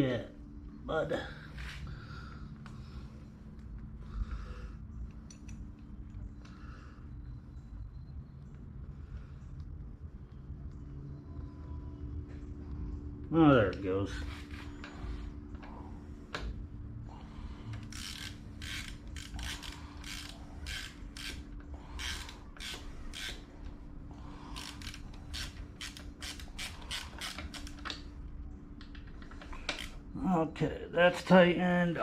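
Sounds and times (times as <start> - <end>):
ratchet tool clicking: 17.7 - 23.4, 24.6 - 28.0.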